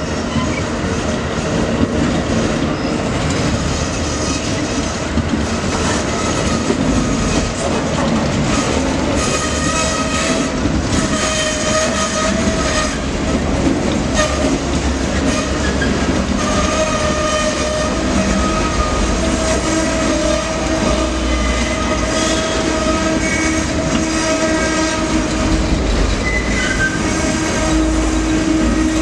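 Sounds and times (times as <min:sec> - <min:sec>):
train wheels rumbling on rails: 0:00.0 - 0:29.0
high squeal of wheels and brakes: 0:00.3 - 0:00.7, 0:02.7 - 0:03.1, 0:26.2 - 0:27.3.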